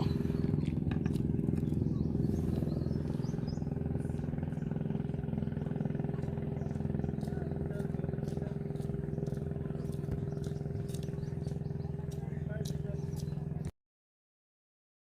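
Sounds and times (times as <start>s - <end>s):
small engine droning: 0.0s - 13.7s.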